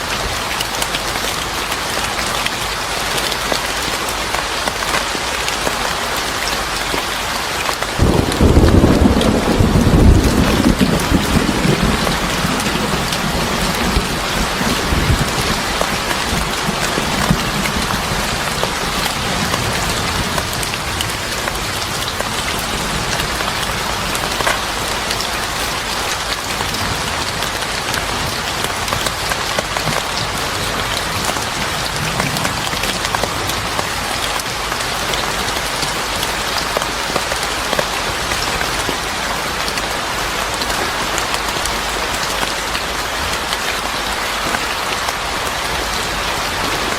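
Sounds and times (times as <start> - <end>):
heavy rain falling: 0.0 - 46.9
low rumble of thunder: 8.0 - 24.4, 26.3 - 34.7.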